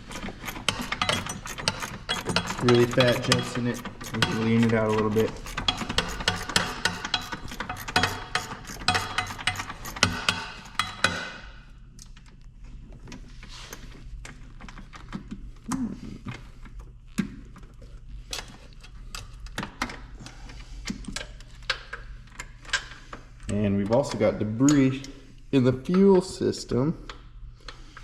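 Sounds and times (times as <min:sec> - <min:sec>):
hand tools clicking and knocking: 0:00.0 - 0:11.4.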